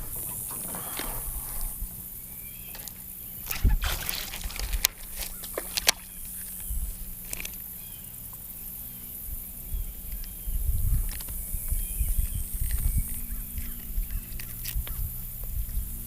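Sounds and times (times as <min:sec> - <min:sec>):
water sloshing around a boat: 0:00.0 - 0:08.4.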